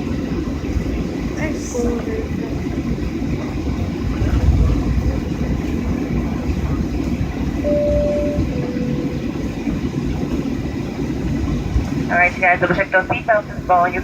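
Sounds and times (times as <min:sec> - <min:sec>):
jet cabin engine rumble: 0:00.0 - 0:14.0
two-tone cabin chime: 0:07.6 - 0:09.4.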